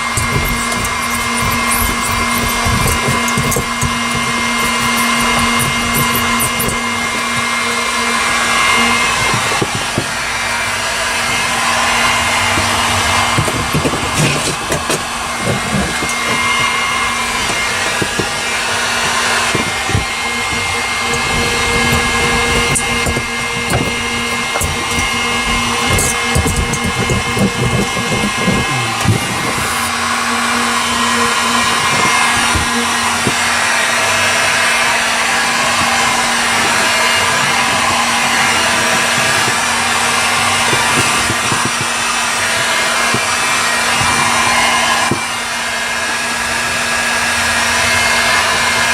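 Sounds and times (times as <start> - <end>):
short knocks and rubbing: 0.0 - 8.2, 12.6 - 29.9
heat gun blowing: 0.0 - 48.9.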